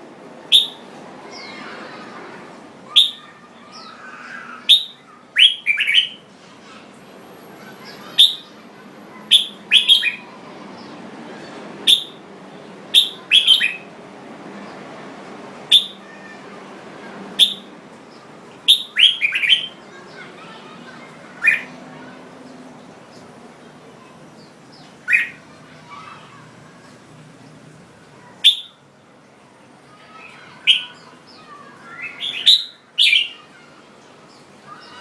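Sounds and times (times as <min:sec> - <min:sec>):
faint background noise: 0:00.0 - 0:35.0
bird chirping: 0:00.5 - 0:00.8, 0:09.2 - 0:10.9, 0:11.9 - 0:12.2, 0:12.9 - 0:13.9, 0:15.7 - 0:16.2, 0:17.4 - 0:17.7, 0:18.6 - 0:20.0, 0:20.9 - 0:21.8, 0:24.0 - 0:26.1, 0:28.2 - 0:28.8, 0:30.4 - 0:33.7.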